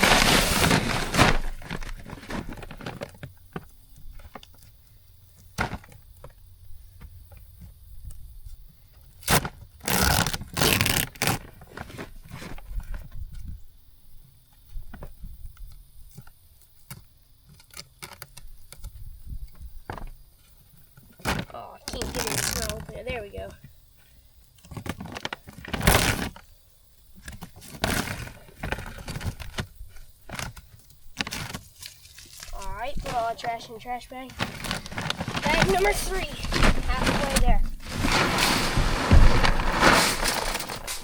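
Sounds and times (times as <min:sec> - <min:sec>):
sack crinkling and tearing: 0:00.0 - 0:03.2, 0:09.2 - 0:12.1, 0:21.2 - 0:22.9, 0:24.7 - 0:26.4, 0:27.6 - 0:29.5, 0:31.2 - 0:41.0.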